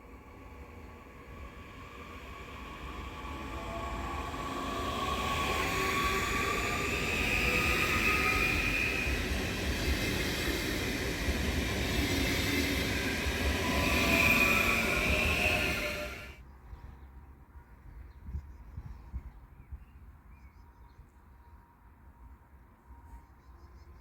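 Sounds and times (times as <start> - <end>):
high whining tones: 0.0 - 16.4
train rumbling past: 0.0 - 16.4.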